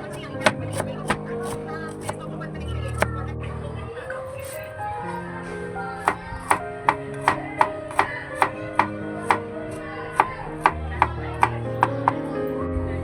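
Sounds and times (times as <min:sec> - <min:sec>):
knife chopping on cutting board: 0:00.0 - 0:02.2, 0:06.1 - 0:09.4, 0:10.1 - 0:12.2.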